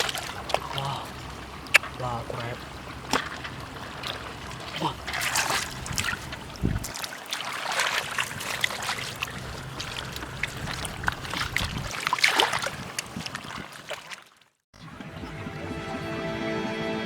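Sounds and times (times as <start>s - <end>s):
small clicks in water: 0.0s - 4.2s
water splashing and trickling: 0.0s - 16.2s.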